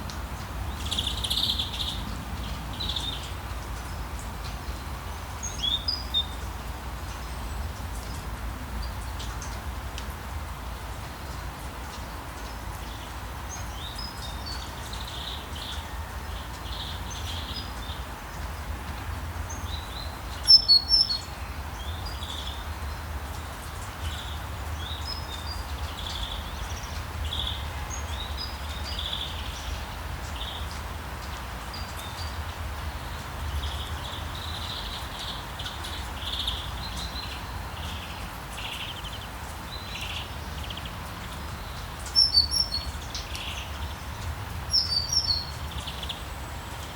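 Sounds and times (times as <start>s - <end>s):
steady rain: 0.0s - 46.9s
small birds chirping: 0.6s - 8.2s, 11.9s - 18.7s, 19.4s - 46.9s.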